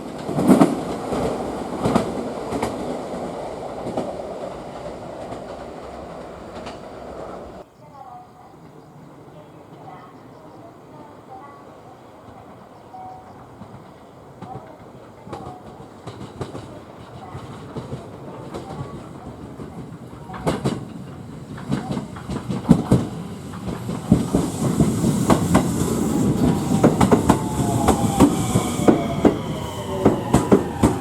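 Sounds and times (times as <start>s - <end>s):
train wheels clacking on rails: 0.0s - 7.6s, 12.2s - 31.0s
falling-pitch motor whine: 24.9s - 31.0s.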